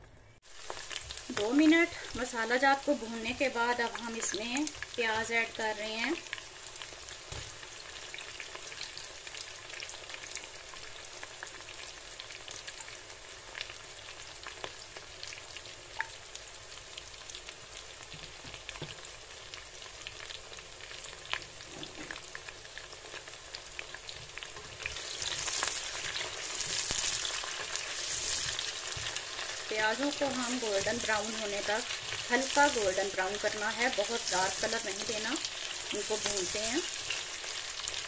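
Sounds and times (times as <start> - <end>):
onions sizzling in hot oil: 0.4 - 38.0
wooden spoon stirring: 24.7 - 35.3.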